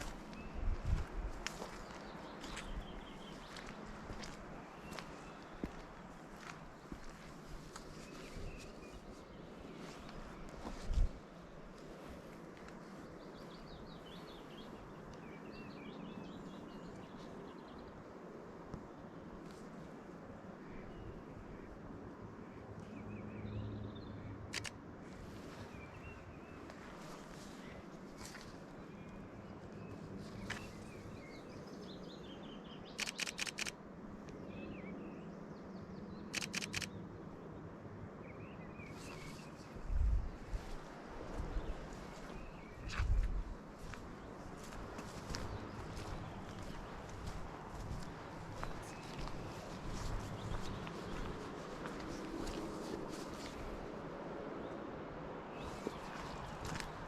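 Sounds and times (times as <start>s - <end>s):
outdoor background hiss: 0.0s - 23.0s
faint birdsong: 0.0s - 57.0s
camera shutter bursts: 33.0s - 33.8s, 36.3s - 36.9s.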